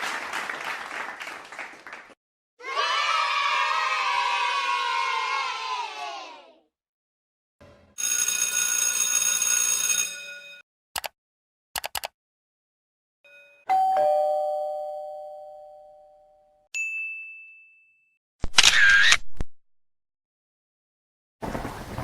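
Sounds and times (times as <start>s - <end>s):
short clicks: 11.0s - 11.2s, 11.8s - 12.1s
brief high ding: 13.3s - 18.1s
two-note doorbell chime: 13.3s - 18.2s.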